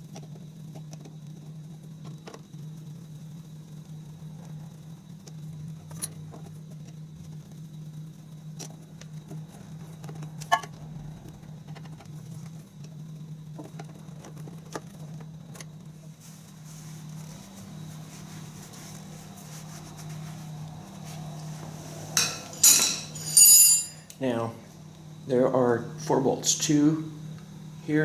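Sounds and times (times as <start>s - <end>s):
steady low hum: 15.9s - 28.0s
metal tools clinking: 22.1s - 24.2s.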